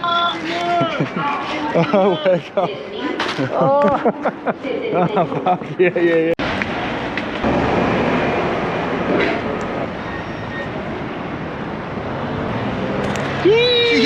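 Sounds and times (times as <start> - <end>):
train rumbling: 6.4 - 14.0.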